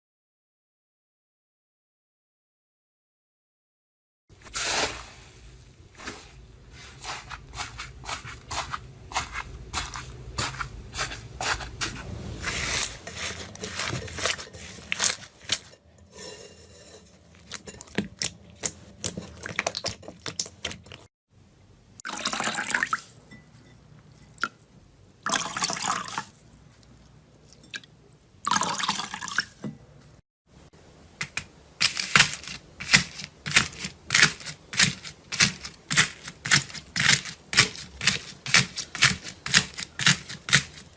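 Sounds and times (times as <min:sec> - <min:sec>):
slime squelching: 0:06.8 - 0:15.8, 0:17.2 - 0:21.1.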